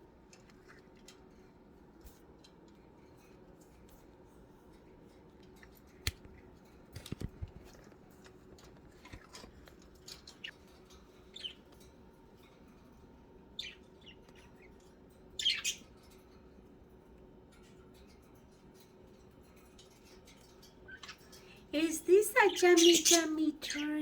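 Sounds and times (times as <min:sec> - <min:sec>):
budgerigars chirping: 0:11.3 - 0:11.7, 0:13.6 - 0:16.0, 0:20.9 - 0:21.5, 0:22.5 - 0:23.9.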